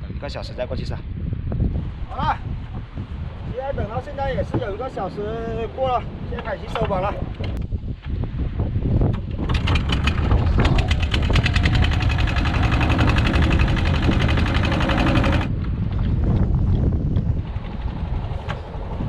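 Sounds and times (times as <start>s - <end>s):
wind rumble on microphone: 0.0s - 19.0s
boat engine knocking: 9.1s - 15.5s.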